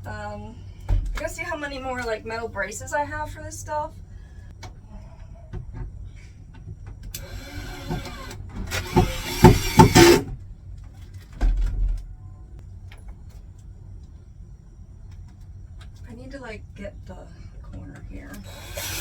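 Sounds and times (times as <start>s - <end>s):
power drill driving screws: 7.2s - 10.3s, 18.4s - 19.0s.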